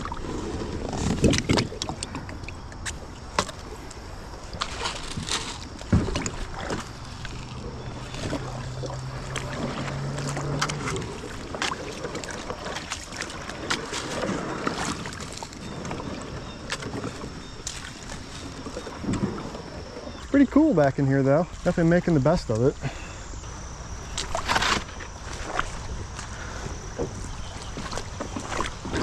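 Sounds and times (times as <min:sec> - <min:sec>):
kayak paddle knocks and scrapes: 0:00.0 - 0:20.3, 0:22.6 - 0:29.0
steady low hum: 0:00.0 - 0:29.0
water splashing: 0:00.0 - 0:29.0.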